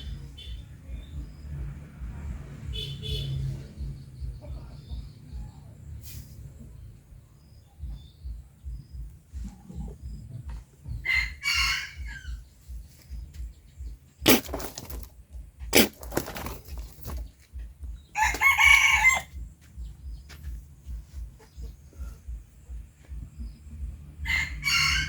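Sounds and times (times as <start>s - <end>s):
sharp knocks: 14.2s - 15.1s.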